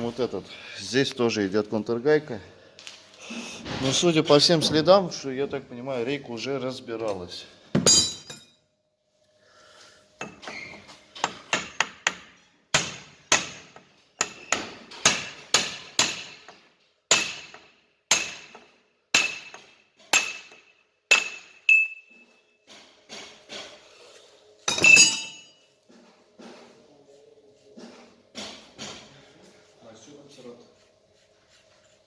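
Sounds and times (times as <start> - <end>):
hammer striking chisel on metal: 7.8 - 8.6, 10.2 - 22.2, 24.7 - 25.6.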